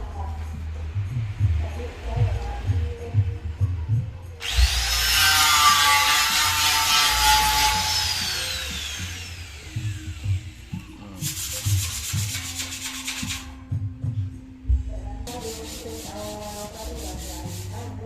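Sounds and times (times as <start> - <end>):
power sander whining: 4.4 - 11.0
sanding strokes scraping: 11.2 - 13.5, 15.3 - 18.0.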